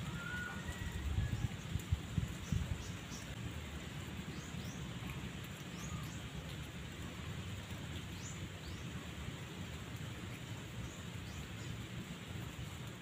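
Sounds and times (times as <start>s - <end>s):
low rumble and hiss: 0.0s - 13.0s
small bird chirping: 4.2s - 6.5s.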